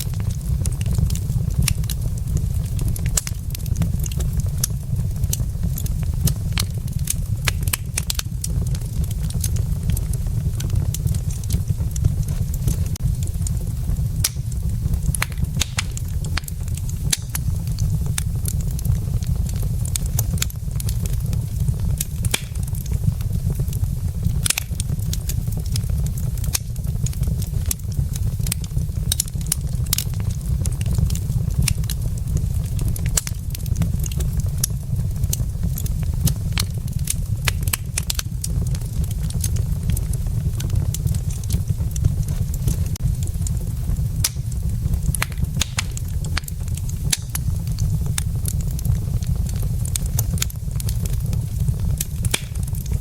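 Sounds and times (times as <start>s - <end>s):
logs crackling in fireplace: 0.0s - 53.0s
low rumble: 0.0s - 53.0s
sharp pops from fire: 0.0s - 53.0s.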